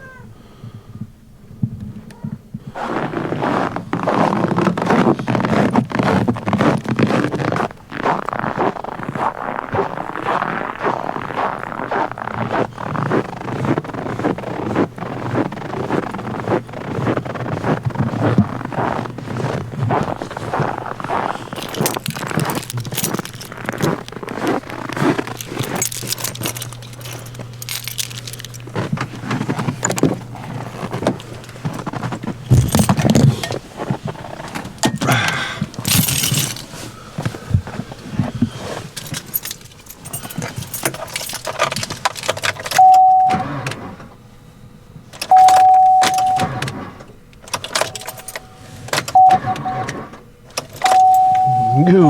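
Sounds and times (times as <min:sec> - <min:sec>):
keys jangling: 0:11.3 - 0:33.6, 0:34.2 - 0:37.7, 0:38.6 - 0:43.5, 0:45.2 - 0:46.7, 0:47.3 - 0:49.6, 0:50.5 - 0:51.9
handling knocks and rattles: 0:11.7 - 0:43.8, 0:45.0 - 0:52.0
electronic warning tone: 0:42.8 - 0:43.8, 0:45.2 - 0:46.9, 0:47.9 - 0:50.0, 0:50.8 - 0:52.0.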